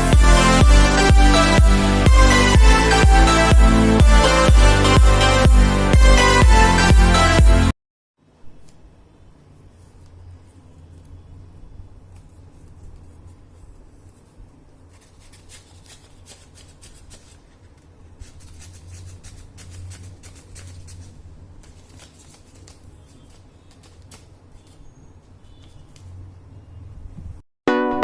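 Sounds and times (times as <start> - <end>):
steady low hum: 0.0 - 7.7
paper crinkling and rustling: 12.0 - 26.3.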